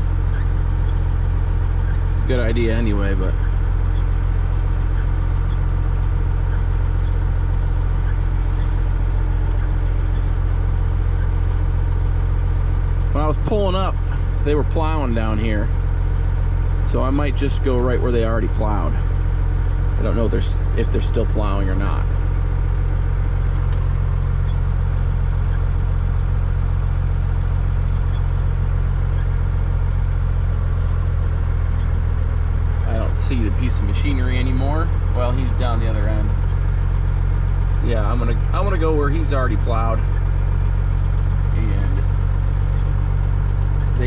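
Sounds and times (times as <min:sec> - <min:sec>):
diesel truck engine droning: 0:00.0 - 0:44.0.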